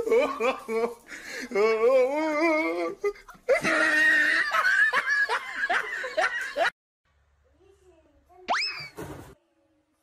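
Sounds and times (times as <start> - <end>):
high-pitched laughter: 0.0 - 6.7.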